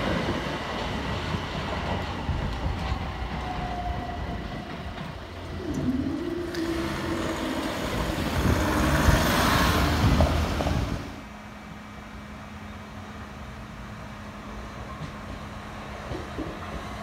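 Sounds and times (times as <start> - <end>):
train passing at speed: 0.0 - 17.0.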